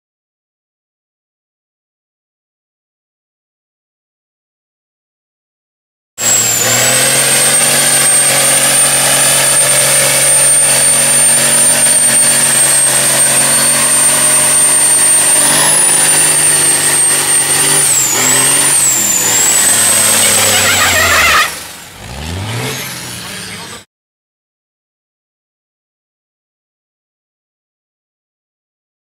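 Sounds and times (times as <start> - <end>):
diesel truck engine revving: 6.2 - 23.9
high whistle: 6.3 - 21.6.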